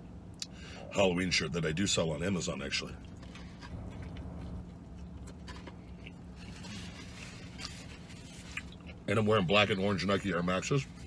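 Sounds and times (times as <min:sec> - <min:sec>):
steady low hum: 0:00.0 - 0:11.0
soft chewing noises: 0:02.2 - 0:10.1.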